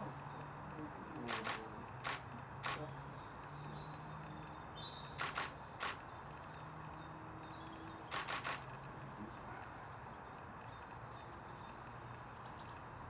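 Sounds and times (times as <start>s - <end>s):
camera shutter clicks: 1.3s - 2.8s, 5.2s - 6.0s, 8.1s - 8.7s.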